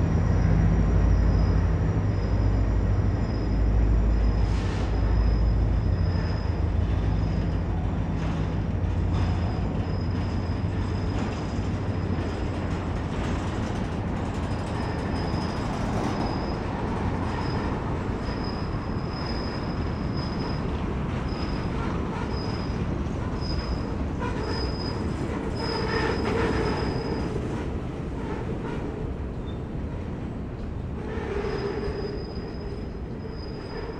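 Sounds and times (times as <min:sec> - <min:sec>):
train wheels rumbling on rail: 0:00.0 - 0:33.9
high-pitched wheel squeal: 0:00.3 - 0:08.4, 0:09.1 - 0:12.4, 0:14.5 - 0:20.7, 0:21.3 - 0:27.4, 0:31.0 - 0:33.9.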